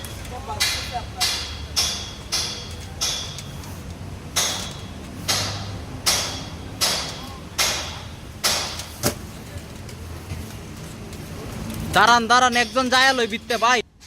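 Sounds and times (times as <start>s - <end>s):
hammer striking metal: 0.5s - 3.7s, 4.3s - 9.0s, 12.4s - 13.8s.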